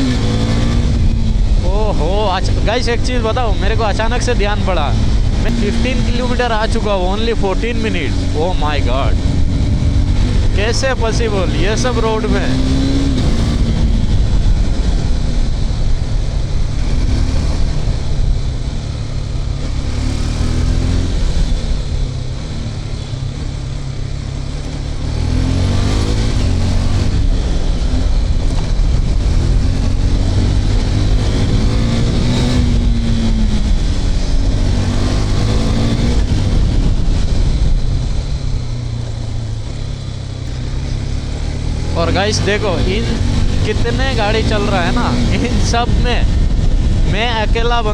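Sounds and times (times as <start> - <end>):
motorcycle engine revving: 0.0 - 47.9
wind and road noise: 0.0 - 47.9.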